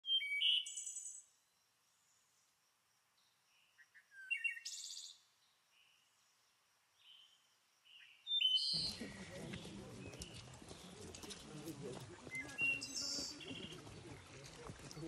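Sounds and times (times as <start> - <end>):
songbird singing with trill: 0.0 - 2.2, 3.2 - 6.3, 7.0 - 11.2, 12.2 - 15.0.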